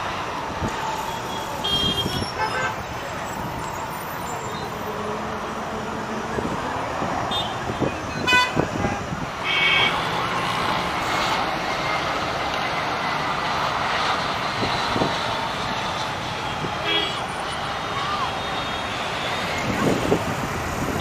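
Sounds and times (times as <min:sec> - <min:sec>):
road traffic noise: 0:00.0 - 0:21.0
vehicle horn toots: 0:01.6 - 0:02.8, 0:08.2 - 0:09.9.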